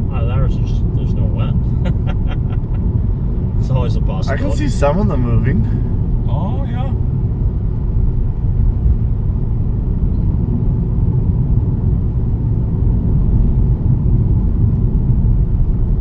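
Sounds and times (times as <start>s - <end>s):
car engine rumble: 0.0s - 16.0s.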